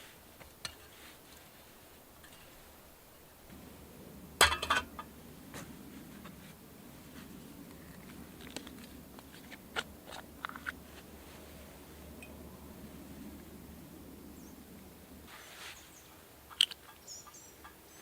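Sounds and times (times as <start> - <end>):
faint low rumble: 2.7 - 16.1.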